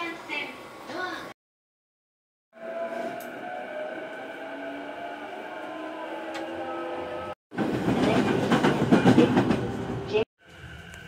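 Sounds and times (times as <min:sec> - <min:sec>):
passing train rushing and rattling: 0:02.6 - 0:11.0
train running noise with whining tones: 0:02.6 - 0:11.0.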